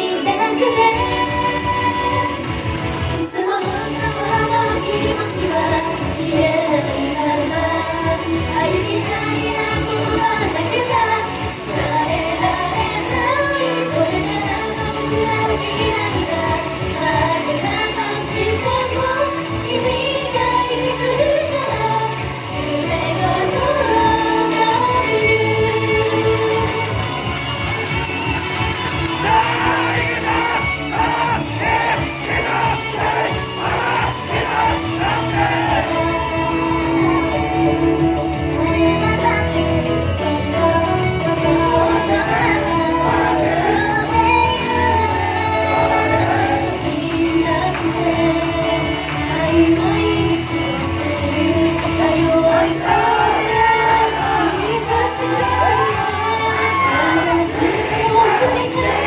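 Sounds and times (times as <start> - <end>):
pop backing track: 0.0 - 59.0
woman singing: 0.0 - 59.0
audience shouting: 27.8 - 37.3, 41.8 - 47.0, 52.0 - 59.0.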